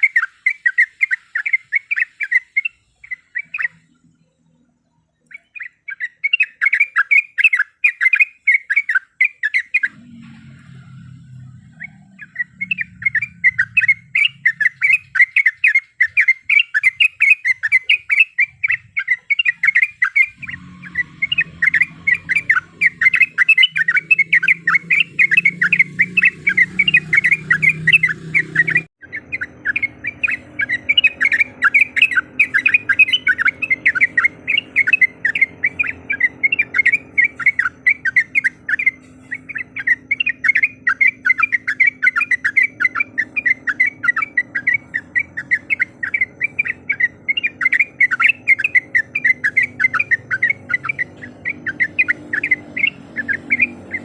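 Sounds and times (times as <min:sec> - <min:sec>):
bird chattering song: 0:00.0 - 0:54.0
low hum: 0:09.9 - 0:15.1, 0:20.3 - 0:54.0.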